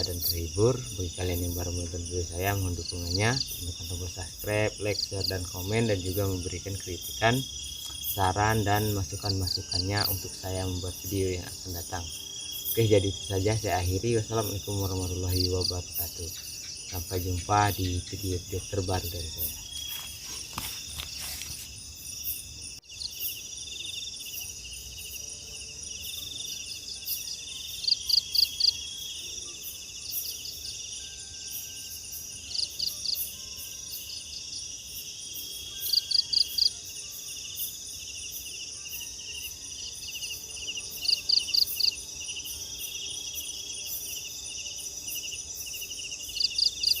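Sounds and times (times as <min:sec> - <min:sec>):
crickets and insects chorus: 0:00.0 - 0:47.0
quick insect chirps: 0:02.5 - 0:25.3, 0:35.4 - 0:47.0.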